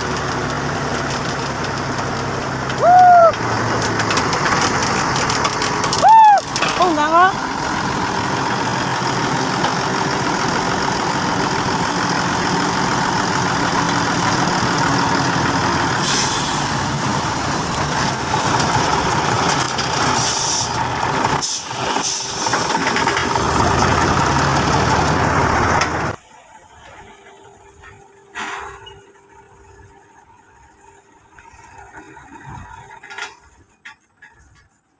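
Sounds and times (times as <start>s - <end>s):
truck engine running: 0.0s - 34.9s
short air hisses: 16.0s - 16.8s, 20.2s - 20.8s.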